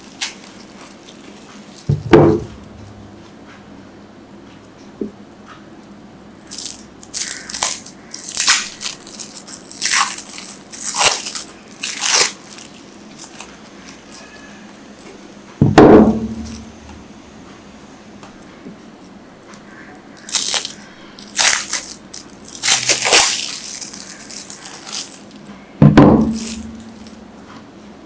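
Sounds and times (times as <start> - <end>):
loud thump: 1.9 - 3.2, 15.6 - 17.1, 25.8 - 26.8.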